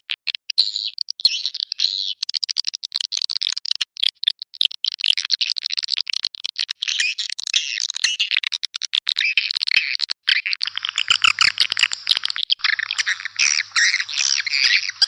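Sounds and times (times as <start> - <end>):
swiftlets twittering: 10.6 - 15.0.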